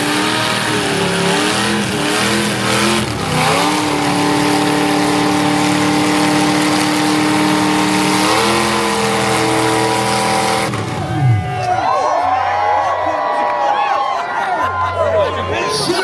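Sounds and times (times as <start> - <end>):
spinning tyres hissing: 0.0 - 10.9
car engine at high revs: 0.0 - 11.4.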